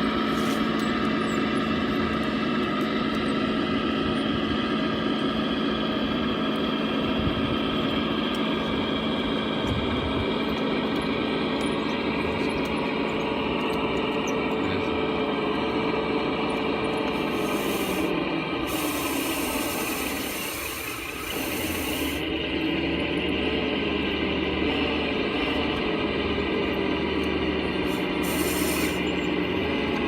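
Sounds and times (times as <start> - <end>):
toy bulldozer motor whine: 0.0 - 30.0
high hiss: 27.9 - 29.0.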